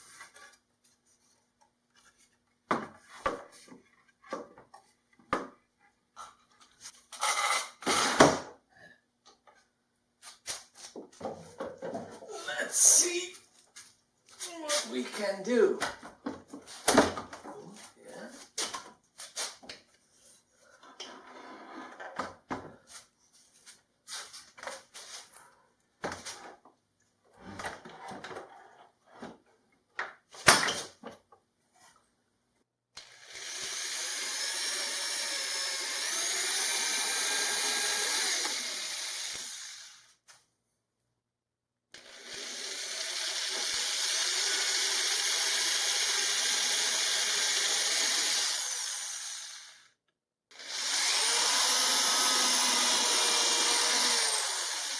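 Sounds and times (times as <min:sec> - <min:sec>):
power tool whining: 0:33.0 - 0:40.1, 0:42.0 - 0:49.9, 0:50.5 - 0:54.9.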